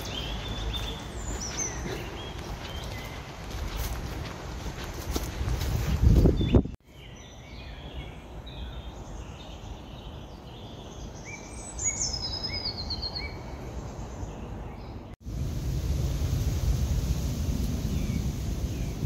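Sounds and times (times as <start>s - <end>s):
songbirds singing: 0.0s - 4.0s, 6.2s - 15.2s, 17.2s - 19.0s
footsteps and rustling: 0.0s - 6.8s
light wind hiss: 15.2s - 19.0s.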